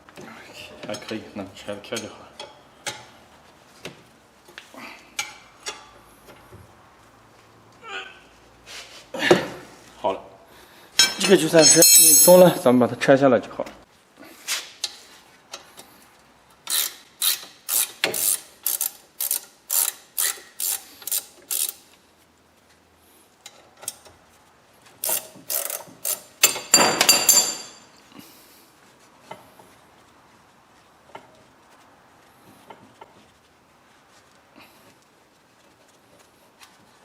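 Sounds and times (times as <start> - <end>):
ratchet wrench clicking: 16.6 - 21.8, 25.0 - 26.7.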